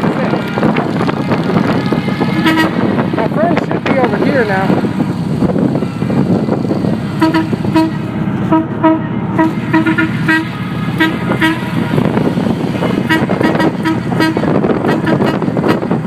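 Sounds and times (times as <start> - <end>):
motorcycle engines rumbling: 0.0 - 16.0
vehicle horn short beeps: 1.9 - 2.8, 7.2 - 11.8.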